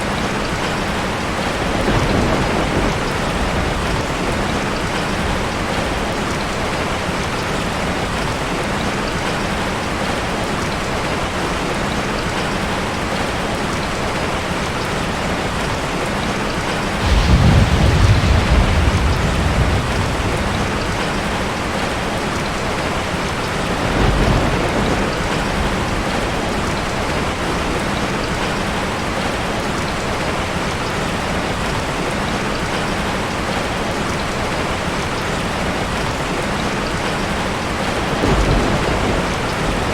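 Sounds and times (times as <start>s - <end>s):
heavy rain falling: 0.0s - 39.9s
low rolls of thunder: 0.5s - 6.9s, 16.9s - 28.6s, 37.8s - 39.9s.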